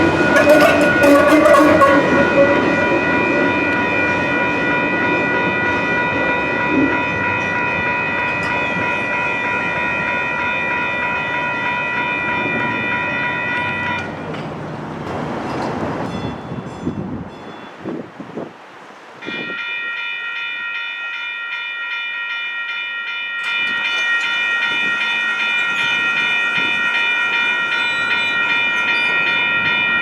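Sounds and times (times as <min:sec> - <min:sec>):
steady high-pitched tone: 0:00.0 - 0:14.0
light rail train rumbling: 0:00.0 - 0:30.0.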